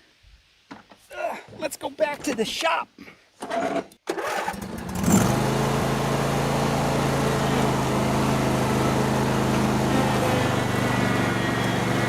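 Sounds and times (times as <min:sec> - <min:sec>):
lawn mower engine running: 0:03.5 - 0:12.0.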